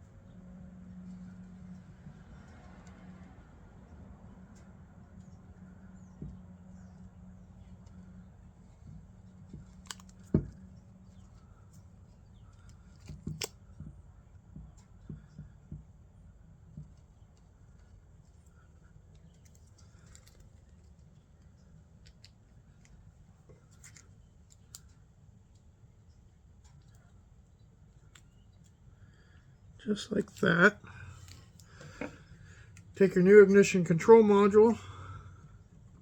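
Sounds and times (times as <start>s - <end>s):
low steady background noise: 0.0s - 36.0s
small parts clicking and tapping: 19.1s - 25.7s.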